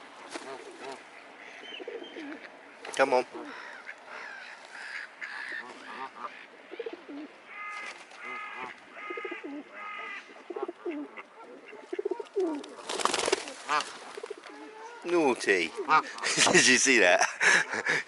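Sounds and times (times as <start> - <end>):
pigeons cooing: 0.3 - 2.5, 3.2 - 15.1
bird calls: 0.3 - 12.9.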